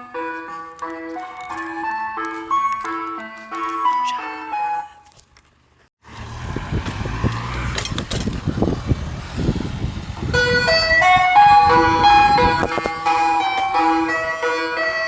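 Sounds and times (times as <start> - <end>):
ice cream van chime tune: 0.0 - 5.2, 10.2 - 15.0
engine and street rumble: 0.0 - 15.0.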